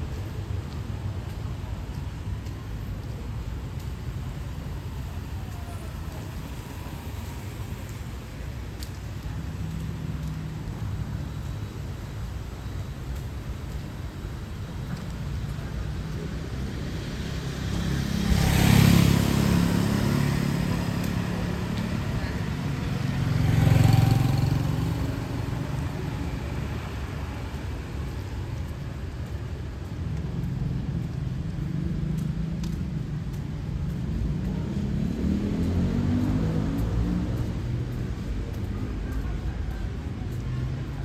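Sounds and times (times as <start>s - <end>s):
hum of city traffic: 0.0s - 41.0s
vehicles passing on wet road: 0.0s - 41.0s
tyres hissing on wet pavement: 0.1s - 41.0s.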